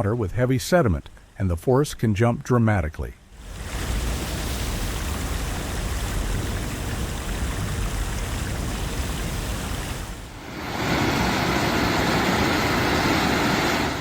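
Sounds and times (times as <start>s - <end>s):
floodwater rushing: 3.3s - 14.0s.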